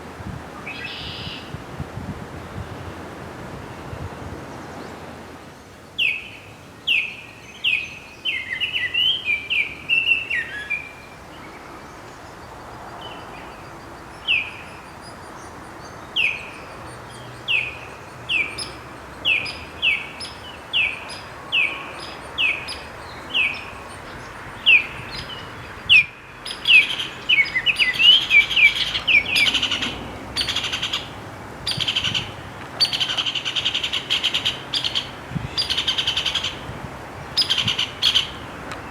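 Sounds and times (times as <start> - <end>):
bird chattering: 26.5 - 36.6, 37.4 - 38.4.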